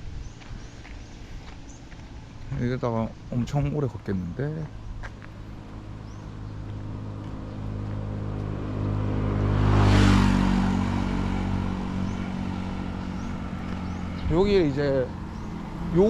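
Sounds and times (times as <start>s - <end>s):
vehicle driving past: 5.3s - 16.0s.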